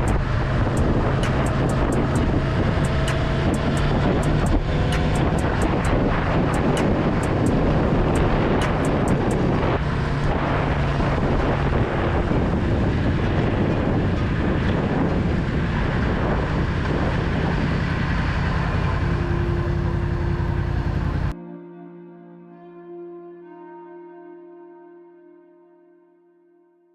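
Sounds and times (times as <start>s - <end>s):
motorcycle engine running: 0.0s - 21.3s
wind on microphone: 0.0s - 21.3s.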